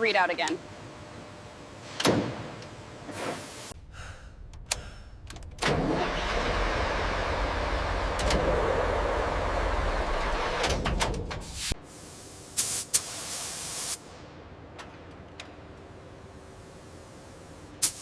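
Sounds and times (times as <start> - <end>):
engine starting and running: 4.5 - 11.4.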